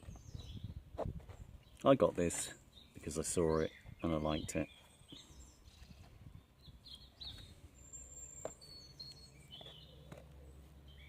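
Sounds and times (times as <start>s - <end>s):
faint bird chirps: 2.7s - 11.0s.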